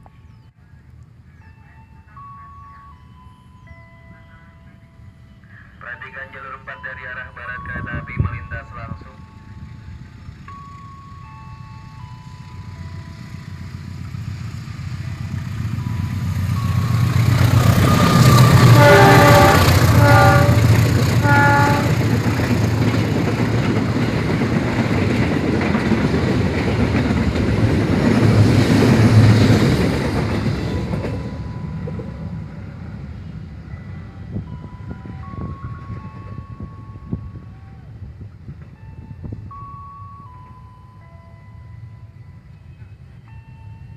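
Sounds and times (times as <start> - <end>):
passing train rumble and rail clatter: 0.0 - 43.9
train horn blasts: 17.7 - 22.2.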